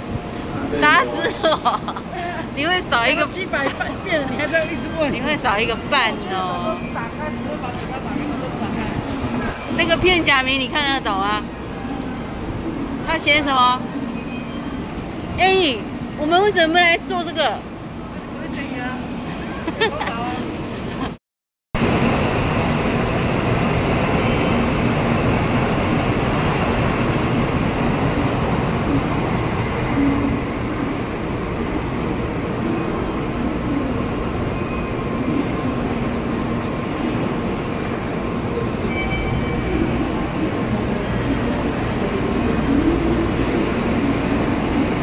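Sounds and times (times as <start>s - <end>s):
train running noise: 0.0s - 21.2s, 21.8s - 45.0s
thin high tone: 37.1s - 44.9s.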